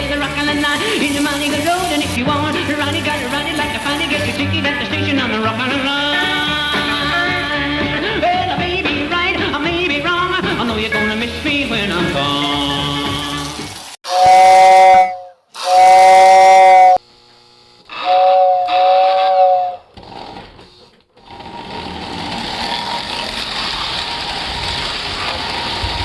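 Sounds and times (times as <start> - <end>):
steady rushing hiss: 0.0 - 4.6
model train steam whistle: 12.4 - 17.0, 17.9 - 19.9.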